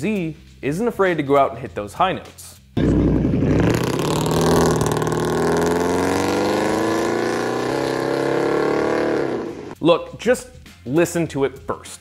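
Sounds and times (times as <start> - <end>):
car engine accelerating hard: 2.8 - 9.8.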